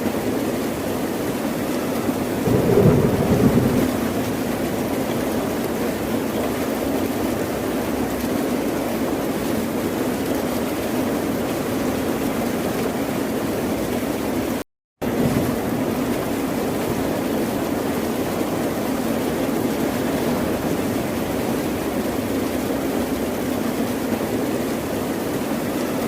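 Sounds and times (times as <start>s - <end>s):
ocean surf: 2.4s - 5.5s.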